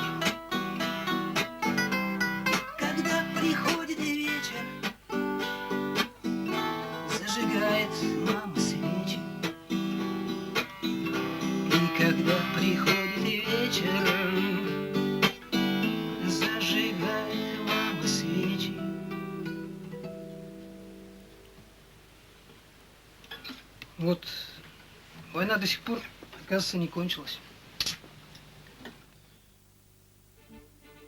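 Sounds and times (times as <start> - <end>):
acoustic guitar strummed: 0.0 - 21.7, 30.4 - 31.0.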